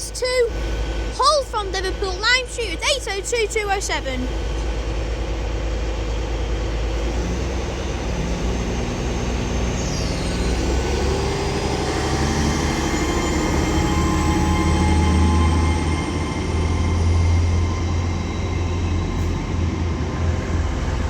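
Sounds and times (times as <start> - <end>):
train low drone: 0.0 - 21.0
train whine rising in pitch: 0.0 - 21.0.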